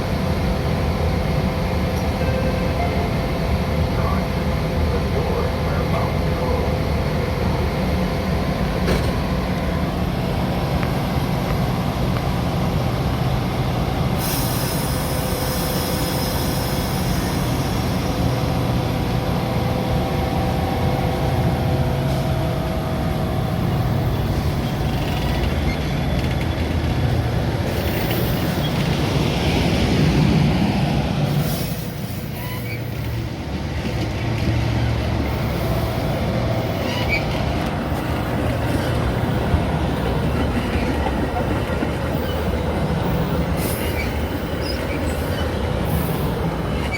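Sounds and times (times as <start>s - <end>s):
train rumbling on rails: 0.0s - 46.9s
air brake hiss: 14.2s - 18.1s.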